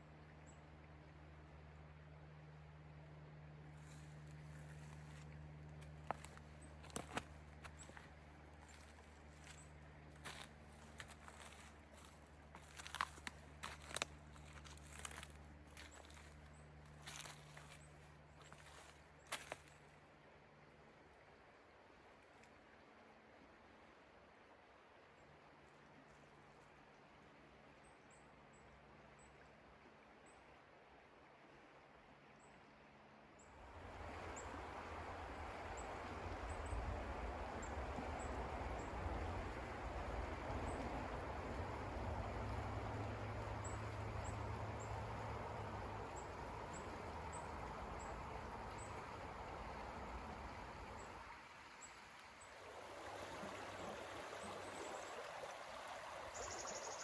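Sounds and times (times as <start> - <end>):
stream rushing water: 0.0 - 25.0, 33.6 - 57.0
faint high bird chirps: 56.3 - 57.0.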